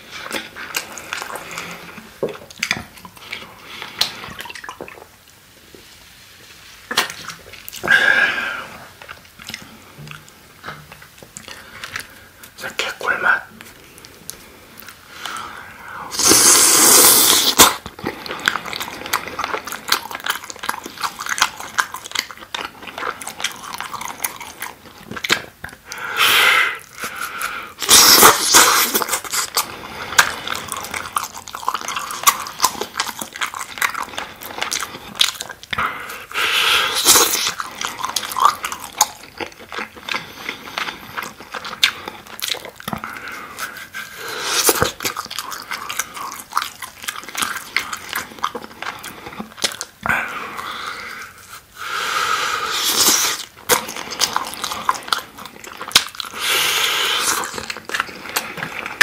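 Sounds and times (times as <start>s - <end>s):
wet chewing and lip-smacking: 0.0s - 5.4s, 8.7s - 59.0s
loud bites and slurps: 15.2s - 59.0s.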